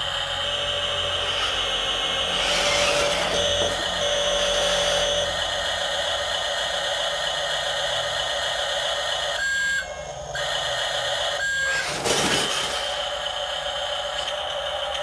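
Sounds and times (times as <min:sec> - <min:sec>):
toy truck electronic whine: 0:00.0 - 0:15.0
rough scraping: 0:11.7 - 0:12.9.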